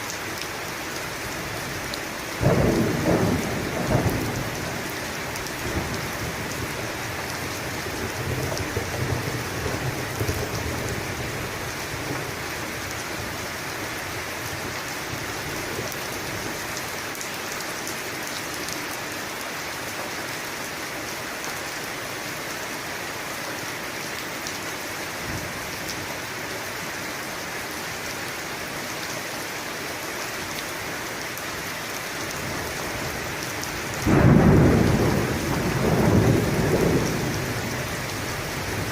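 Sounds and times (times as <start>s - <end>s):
heavy rain falling: 0.0s - 38.9s
low rumble of thunder: 2.4s - 12.4s, 33.9s - 38.9s.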